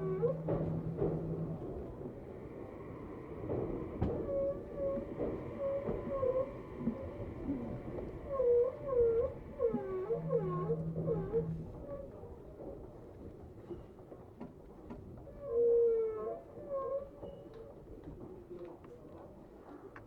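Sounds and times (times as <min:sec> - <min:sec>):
train wheels and brakes squealing: 0:00.0 - 0:12.3.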